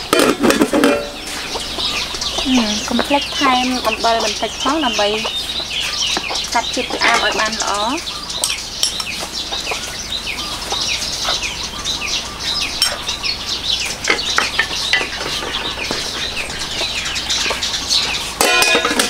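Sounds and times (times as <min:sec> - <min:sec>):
birds chirping: 0:00.0 - 0:19.0
metal pot lid clatter: 0:00.1 - 0:01.3, 0:18.4 - 0:19.0.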